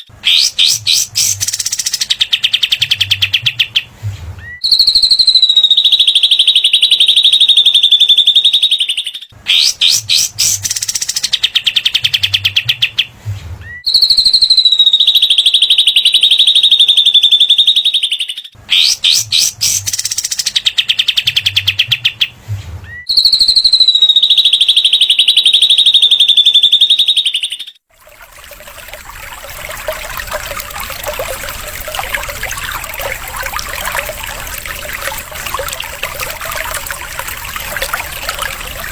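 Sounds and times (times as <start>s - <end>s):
water trickling: 0.1s - 2.2s, 9.7s - 11.4s, 19.0s - 20.6s, 27.9s - 38.9s.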